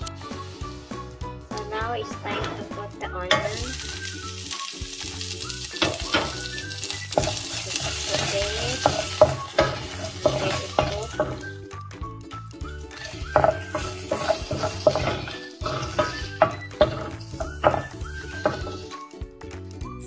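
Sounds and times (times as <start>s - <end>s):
onion sizzling in hot oil: 0.0s - 19.2s
wooden spoon scraping a pan: 5.8s - 11.6s, 12.9s - 19.0s.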